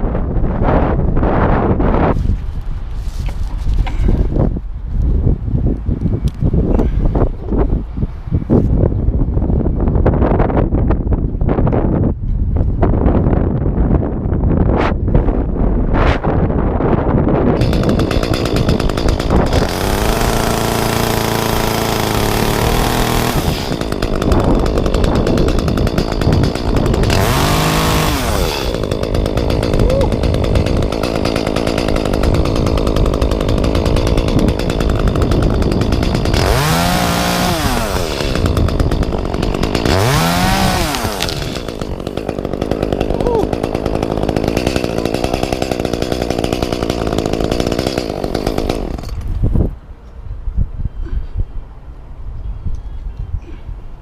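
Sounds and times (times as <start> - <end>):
chainsaw engine revving: 17.6 - 49.5.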